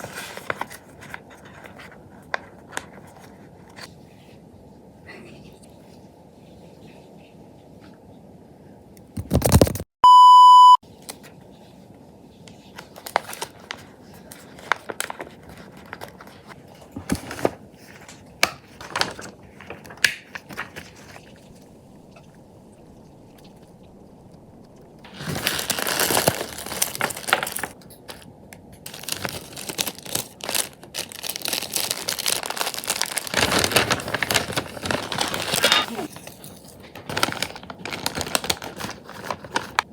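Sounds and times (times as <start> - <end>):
wrapping paper crinkling and tearing: 0.0 - 3.8, 12.7 - 16.6, 17.2 - 21.7, 25.0 - 39.9
short electronic beep: 10.0 - 10.8.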